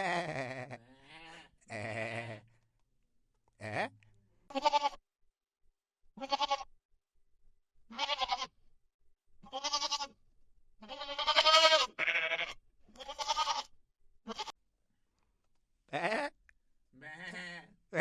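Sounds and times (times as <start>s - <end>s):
goat bleating: 0.0s - 2.6s, 4.5s - 5.0s, 6.2s - 6.8s, 7.9s - 8.6s, 9.4s - 10.2s, 10.8s - 14.6s, 15.9s - 16.4s, 17.0s - 18.0s.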